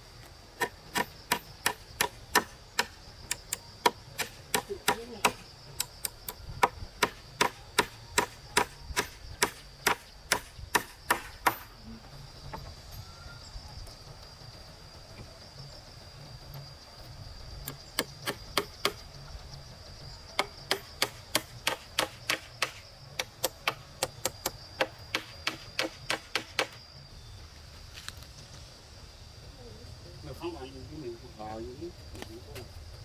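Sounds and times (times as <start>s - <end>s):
hand tool striking wood: 0.6s - 11.7s, 17.7s - 19.0s, 20.4s - 26.8s.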